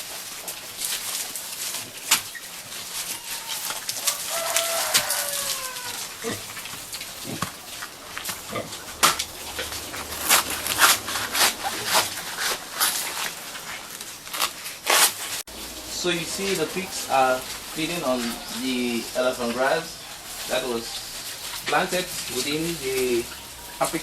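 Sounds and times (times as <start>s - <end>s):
pigs crunching grass stems: 0.0s - 24.0s
short high pig call: 2.9s - 6.5s.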